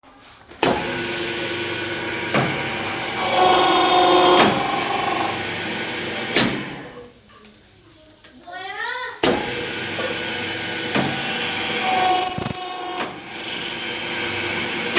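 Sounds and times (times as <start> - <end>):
key-cutting machine motor running: 2.2 - 5.5, 11.5 - 14.6.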